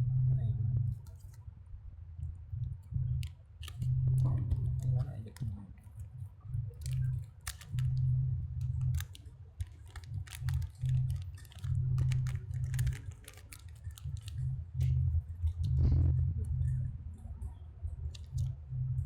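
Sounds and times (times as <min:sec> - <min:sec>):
low hum: 0:00.0 - 0:19.0
small plastic and metal parts clicking: 0:03.6 - 0:03.9, 0:06.8 - 0:08.0, 0:08.7 - 0:14.4.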